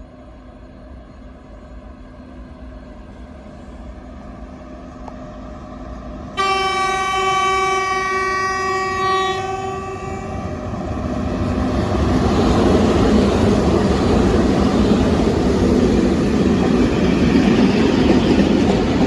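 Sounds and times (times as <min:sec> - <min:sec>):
freight train approaching: 0:00.0 - 0:19.0
locomotive horn blast: 0:06.4 - 0:10.7.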